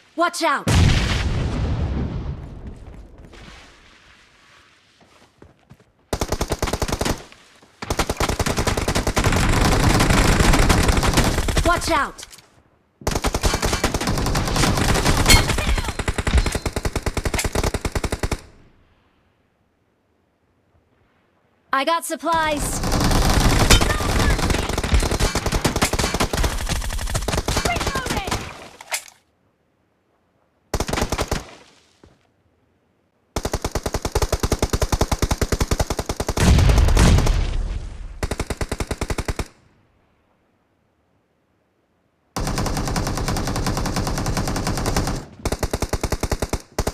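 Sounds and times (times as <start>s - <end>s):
video game automatic gunfire: 7.9s - 11.8s, 22.4s - 28.5s.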